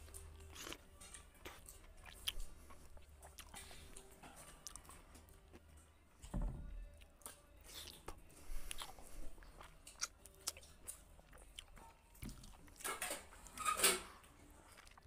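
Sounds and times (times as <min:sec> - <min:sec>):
person chewing: 0:00.0 - 0:05.6, 0:07.0 - 0:12.8, 0:14.6 - 0:15.0.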